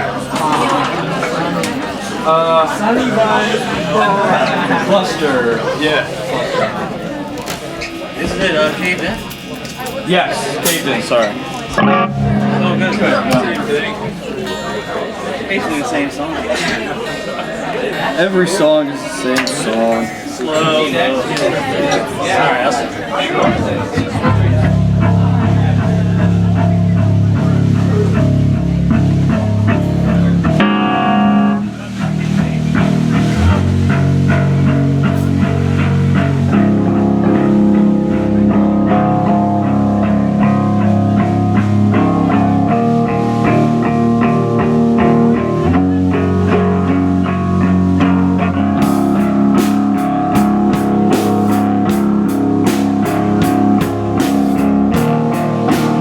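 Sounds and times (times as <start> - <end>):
electric guitar chords: 11.5 - 22.3, 23.4 - 56.0
bass guitar: 11.7 - 15.2, 23.4 - 56.0
drum hits: 48.7 - 56.0.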